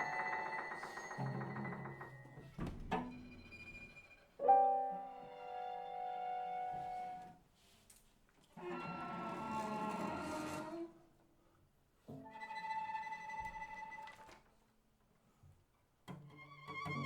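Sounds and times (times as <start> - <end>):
piano trio chamber music: 4.4 - 7.3.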